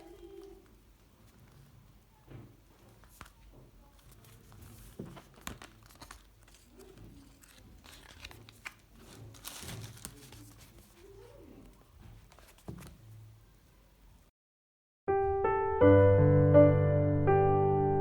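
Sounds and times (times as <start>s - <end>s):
crinkling and rustling: 0.0s - 13.3s.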